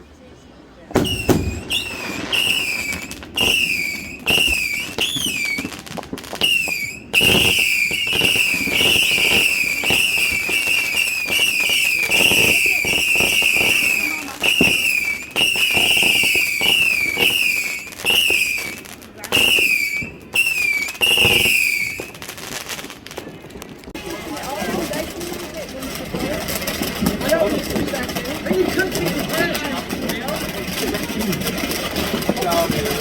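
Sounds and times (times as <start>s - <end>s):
firework cracks: 0.9s - 33.0s
whistling fireworks shrieking: 0.9s - 33.0s.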